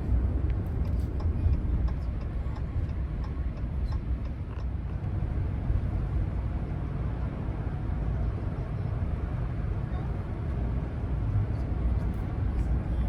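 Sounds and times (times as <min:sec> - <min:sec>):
truck engine and road noise: 0:00.0 - 0:13.0
faint light ticks: 0:00.5 - 0:05.1.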